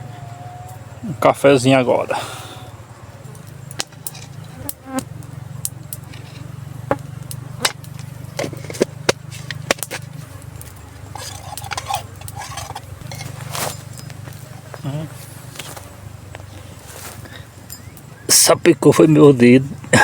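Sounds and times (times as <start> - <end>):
campfire crackling: 0.0 - 20.0
fire pops and clicks: 3.3 - 14.5.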